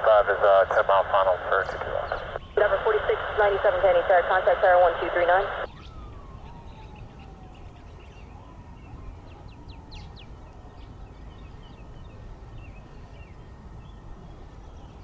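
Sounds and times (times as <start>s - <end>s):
steady low rumble: 0.0s - 5.7s
small birds chirping: 0.4s - 4.4s.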